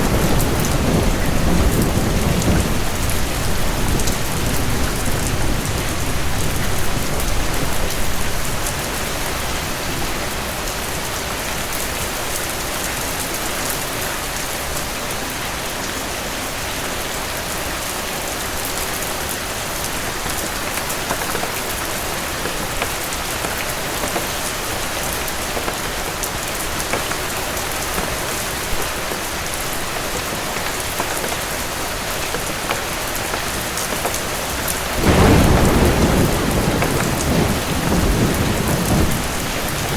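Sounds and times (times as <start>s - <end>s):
low rumble of thunder: 0.0s - 9.4s, 34.8s - 39.9s
heavy rain pattering: 0.0s - 39.9s.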